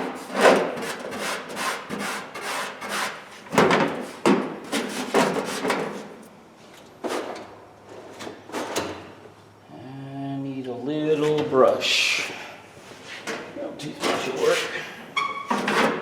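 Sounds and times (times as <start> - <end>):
rubbing and scraping strokes: 0.2 - 3.5, 4.1 - 6.2.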